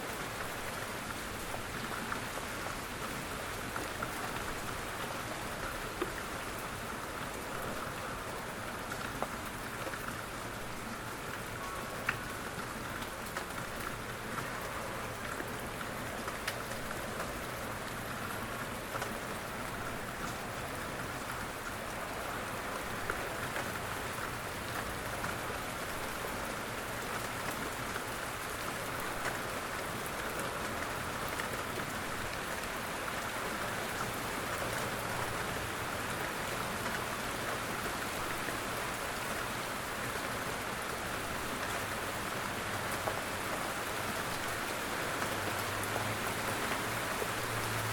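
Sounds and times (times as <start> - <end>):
steady rain hiss: 0.0 - 47.9
sharp rain ticks: 0.1 - 47.9.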